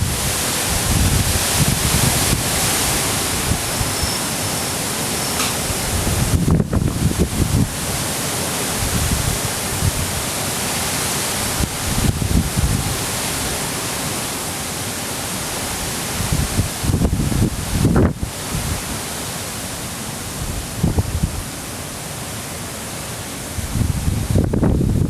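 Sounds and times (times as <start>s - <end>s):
wind buffeting microphone: 0.0s - 4.6s, 5.4s - 8.1s, 8.7s - 10.3s, 11.4s - 13.6s, 15.9s - 18.9s, 20.4s - 21.5s, 23.5s - 25.0s
strong wind rushing: 0.0s - 10.3s, 11.3s - 13.6s, 15.6s - 19.0s, 20.3s - 21.5s, 23.5s - 25.0s.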